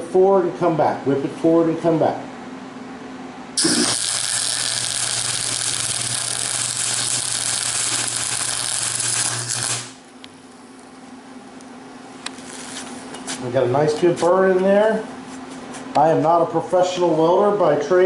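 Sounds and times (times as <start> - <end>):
welding arc crackling: 3.6 - 10.0, 12.2 - 13.0.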